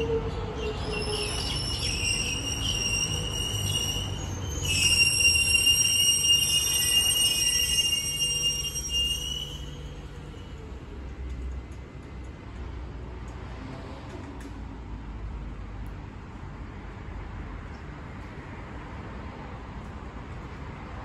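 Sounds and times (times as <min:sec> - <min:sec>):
train brakes squealing: 0:00.0 - 0:10.7
train low rumble: 0:00.0 - 0:21.0.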